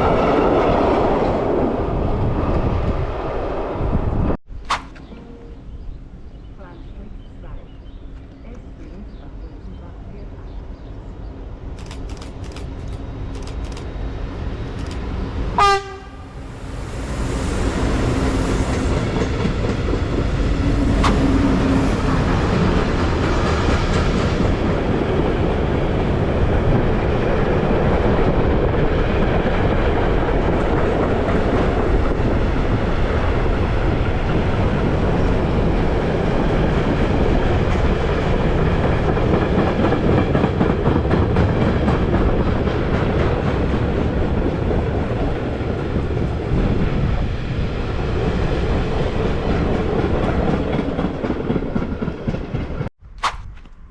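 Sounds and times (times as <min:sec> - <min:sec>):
train wheels rumbling over rails: 0:10.9 - 0:52.9
train horn blast: 0:15.6 - 0:16.8.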